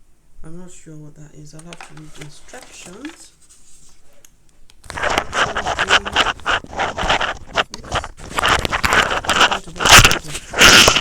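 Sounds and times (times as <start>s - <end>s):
packaging rustling and crackling: 1.6s - 11.0s.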